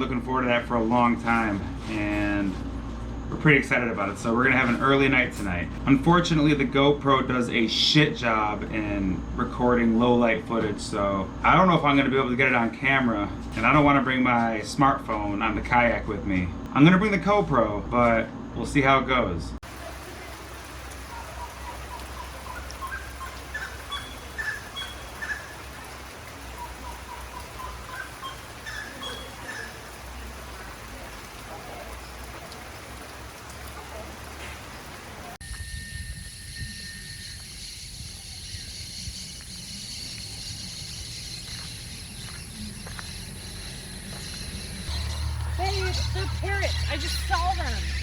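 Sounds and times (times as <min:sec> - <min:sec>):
animal chirping calls: 0:21.0 - 0:29.9, 0:37.5 - 0:48.0
insects droning: 0:35.1 - 0:48.0
thin whistle-like note: 0:35.4 - 0:41.4.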